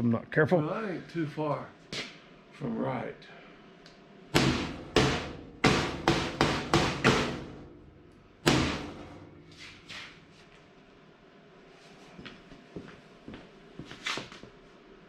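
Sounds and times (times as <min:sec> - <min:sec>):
hammer blows on steel: 0:04.4 - 0:07.8.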